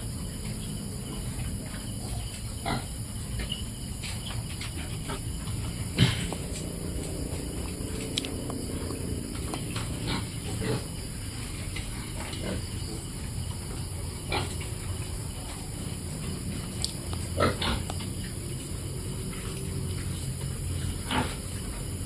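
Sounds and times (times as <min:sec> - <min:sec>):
piglets grunting and squealing: 0:04.9 - 0:11.2.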